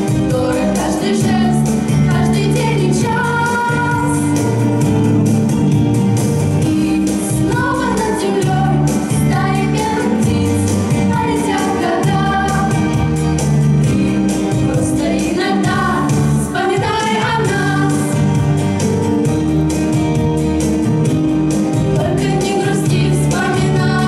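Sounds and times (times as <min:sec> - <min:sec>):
vocal group singing: 0:00.0 - 0:04.5, 0:06.7 - 0:18.6, 0:21.9 - 0:24.0
instrumental accompaniment: 0:00.0 - 0:24.0.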